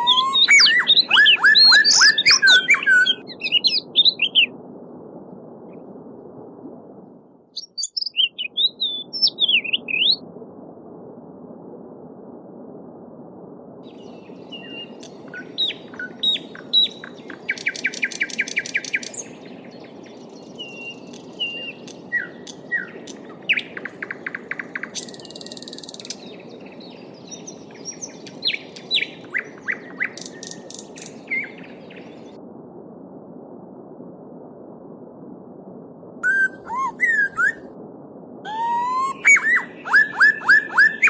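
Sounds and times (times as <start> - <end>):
songbirds singing: 0.0 - 4.5, 7.6 - 10.2, 13.9 - 32.4, 38.6 - 41.0.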